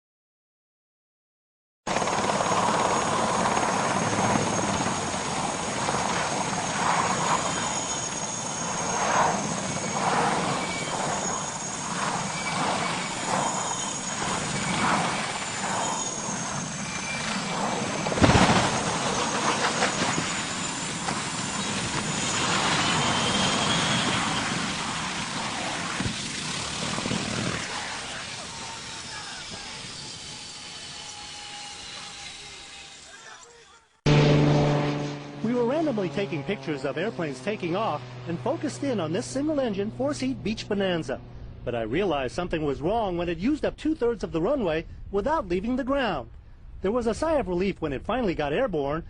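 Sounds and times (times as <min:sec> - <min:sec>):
aircraft noise with high whine: 0:01.9 - 0:33.5, 0:34.1 - 0:48.8
loud bang: 0:18.1 - 0:20.3, 0:34.1 - 0:35.7.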